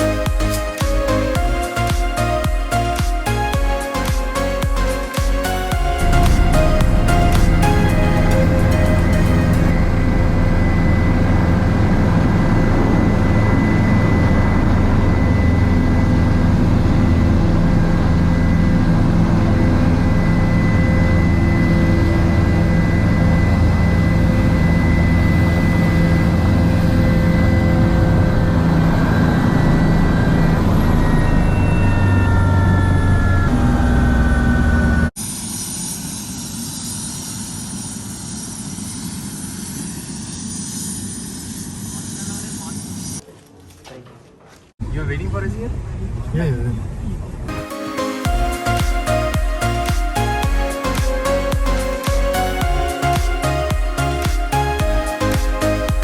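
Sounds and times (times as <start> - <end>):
helicopter engine and rotor: 0.0 - 43.2.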